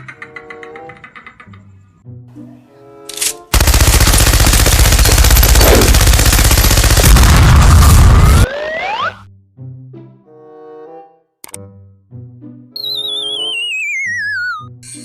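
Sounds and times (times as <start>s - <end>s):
loud rapid rattling: 3.5s - 7.6s.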